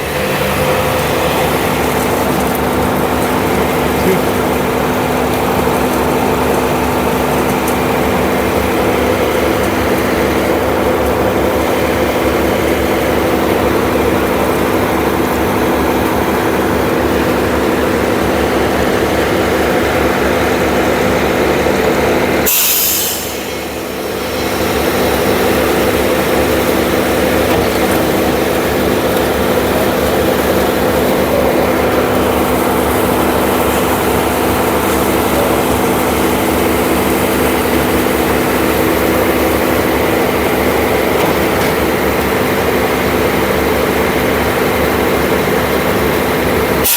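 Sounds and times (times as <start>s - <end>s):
heavy diesel engine running: 0.0s - 46.9s
sharp hiss: 22.5s - 23.7s.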